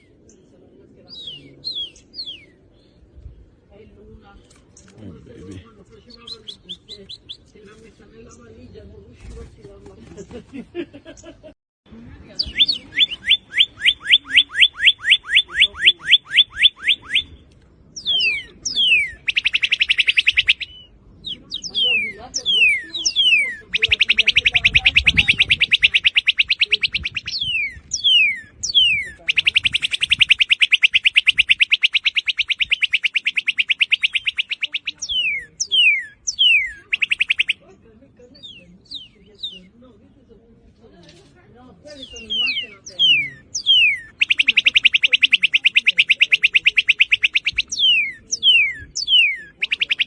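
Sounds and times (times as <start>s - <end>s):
bird trilling: 1.1s - 2.9s, 12.3s - 39.8s, 41.9s - 50.0s
bird whistles slurring downward: 18.0s - 37.6s, 42.0s - 50.0s.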